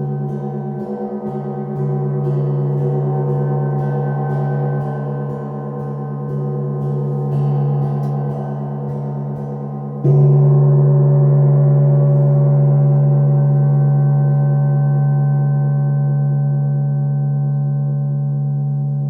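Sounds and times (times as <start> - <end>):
gong ringing: 0.0 - 14.9.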